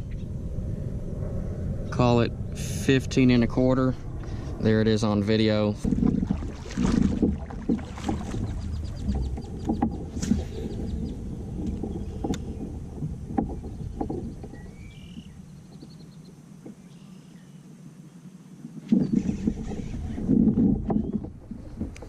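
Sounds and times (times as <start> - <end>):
knocks on a kayak: 5.8 - 11.0.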